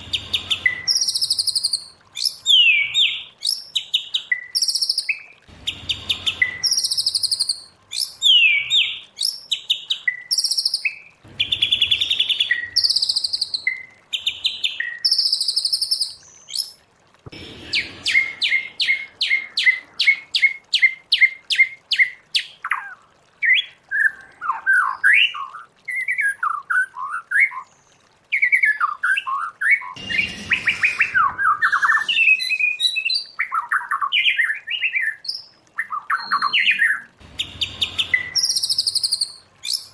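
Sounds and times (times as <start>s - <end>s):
bird singing whistled phrases: 0.6s - 3.6s, 6.3s - 9.4s, 28.4s - 37.1s, 37.8s - 39.9s.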